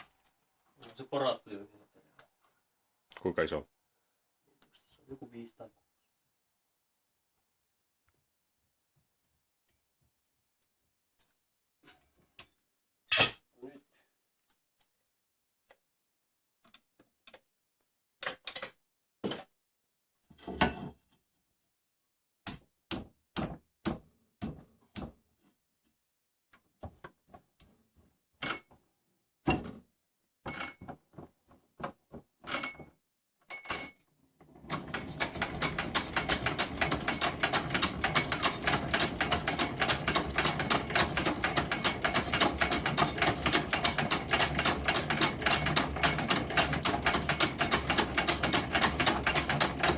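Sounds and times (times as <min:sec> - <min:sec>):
metal clicks and knocks: 0:31.9 - 0:49.9
hand-cranked drill press clattering: 0:34.4 - 0:49.9.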